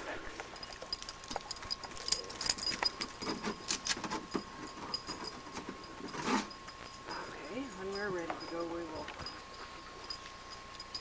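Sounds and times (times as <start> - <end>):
faint steady tone: 0.0 - 11.0
clatter of things being handled: 0.4 - 7.5.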